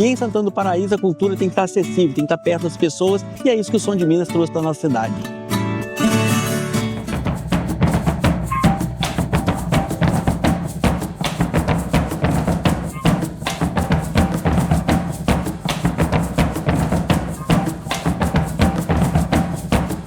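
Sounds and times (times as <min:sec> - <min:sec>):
music with drum beat: 0:06.0 - 0:20.0
sharp clicking strikes: 0:07.0 - 0:20.0.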